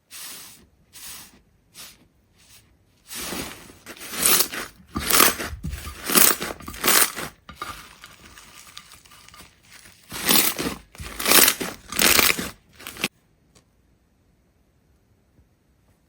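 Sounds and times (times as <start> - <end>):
crisp material crunching: 3.1 - 13.1.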